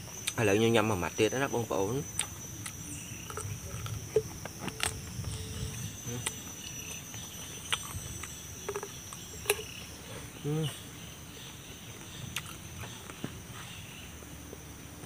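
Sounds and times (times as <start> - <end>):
insect drone: 0.0 - 15.0
person chewing crunchy fruit: 0.1 - 0.4, 2.0 - 10.4, 12.0 - 13.8.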